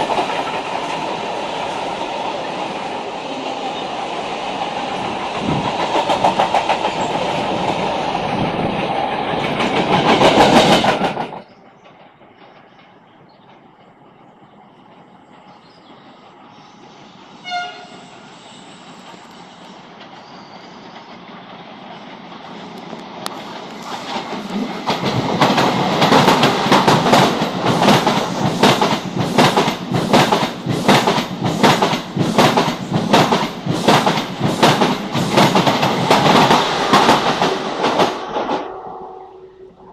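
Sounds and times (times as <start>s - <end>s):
train passing: 0.0s - 39.9s
train horn blast: 17.4s - 18.3s, 38.4s - 39.9s.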